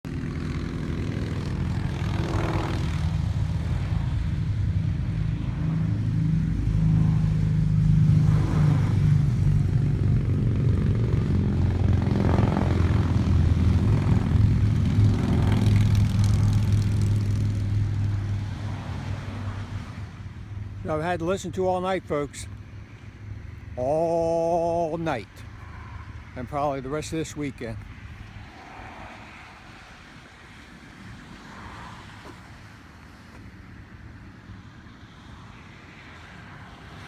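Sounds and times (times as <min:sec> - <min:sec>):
motorcycles passing: 0:00.1 - 0:33.4
motorcycle engine revs: 0:10.8 - 0:18.4.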